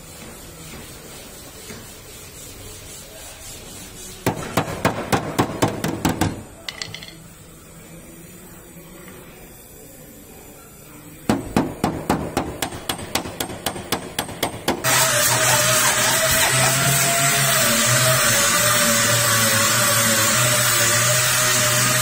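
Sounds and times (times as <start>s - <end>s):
hammer tapping: 11.3s - 14.8s.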